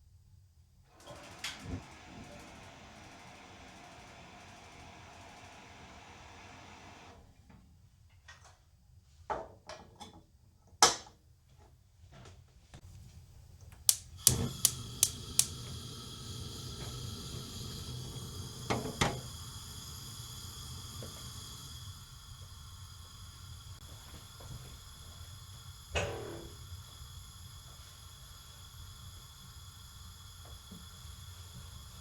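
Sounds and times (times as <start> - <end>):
faint steady hum: 12.9 - 32.0
sharp clicks and knocks: 13.7 - 15.6.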